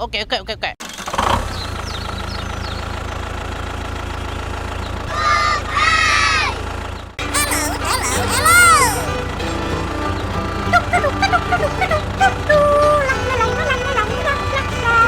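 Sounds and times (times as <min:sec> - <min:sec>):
engine idling: 0:00.8 - 0:07.4, 0:09.1 - 0:15.0
high wavering voice-like cry: 0:05.1 - 0:06.6, 0:07.2 - 0:09.2, 0:10.6 - 0:15.0.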